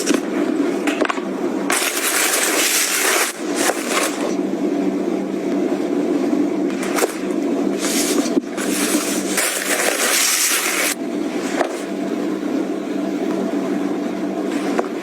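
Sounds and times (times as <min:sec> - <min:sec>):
packaging rustling and scraping: 0:00.0 - 0:00.3, 0:01.7 - 0:04.4, 0:06.8 - 0:11.9.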